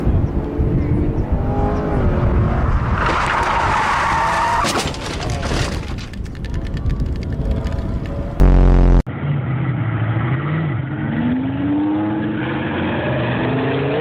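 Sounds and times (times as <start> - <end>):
tyres squealing in a skid: 2.6 - 5.8
car engine running: 8.4 - 9.1.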